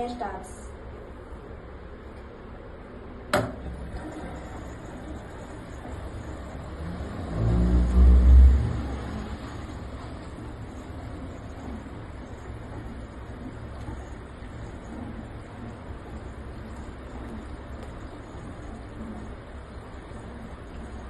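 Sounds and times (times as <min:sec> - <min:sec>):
washer-dryer low hum: 0:00.0 - 0:21.0
washer-dryer click: 0:03.3 - 0:03.8.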